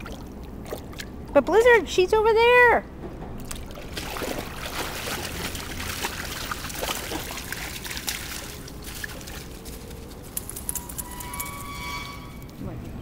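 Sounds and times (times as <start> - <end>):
small water splashes: 0.0 - 1.3, 3.4 - 10.3
river water trickling and lapping: 0.0 - 1.4, 3.4 - 10.6.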